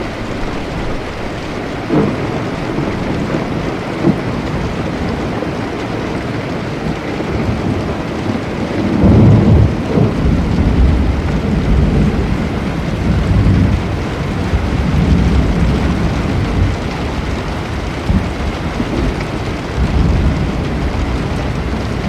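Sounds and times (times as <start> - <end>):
steady rain: 0.0 - 22.0
thunder rumbling: 0.0 - 22.0.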